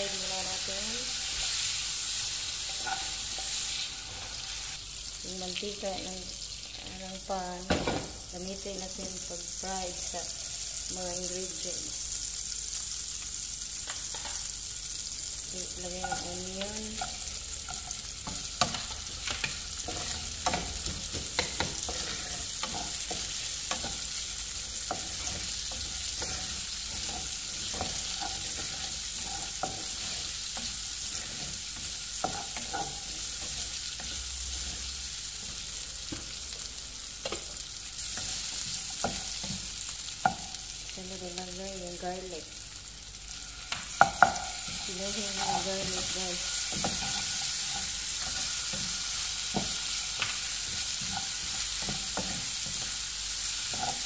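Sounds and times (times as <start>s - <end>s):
onions sizzling in hot oil: 0.0s - 54.0s
wooden spatula scraping a pan: 17.0s - 36.4s, 44.0s - 54.0s.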